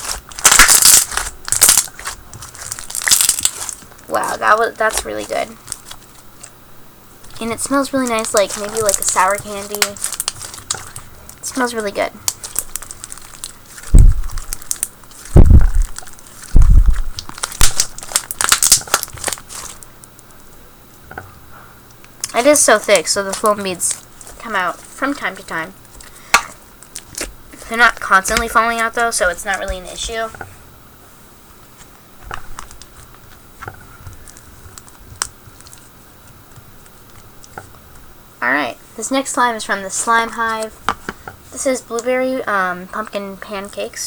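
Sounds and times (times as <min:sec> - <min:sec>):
slime squished by hand crackling: 0:00.0 - 0:04.0
heavy low thuds: 0:13.9 - 0:14.6, 0:15.3 - 0:17.2.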